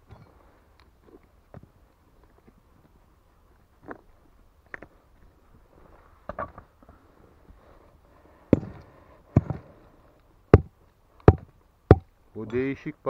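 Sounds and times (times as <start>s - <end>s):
digging tool striking stone: 8.5s - 9.6s, 10.5s - 12.1s.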